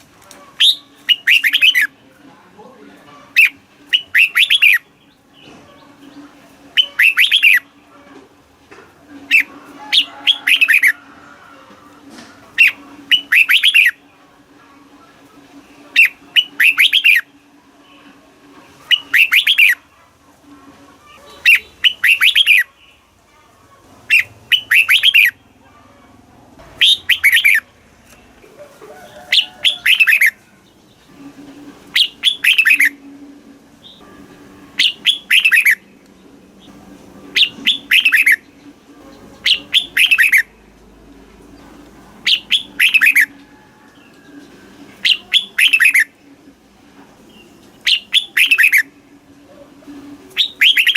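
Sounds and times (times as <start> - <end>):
bird warbling song: 0.0 - 1.9, 3.3 - 7.7, 9.2 - 11.0, 12.6 - 14.0, 15.8 - 18.1, 18.9 - 19.8, 21.1 - 23.0, 24.1 - 25.5, 26.8 - 28.2, 29.1 - 31.3, 31.9 - 33.1, 33.8 - 35.9, 36.6 - 40.7, 42.2 - 46.2, 47.3 - 49.0, 50.2 - 50.9.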